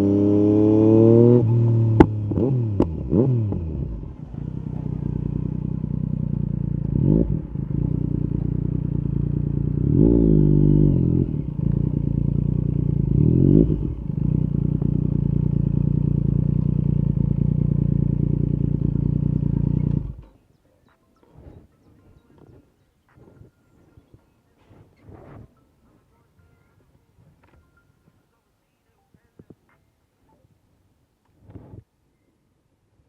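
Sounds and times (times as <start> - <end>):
motorcycle engine revving: 0.0 - 20.5.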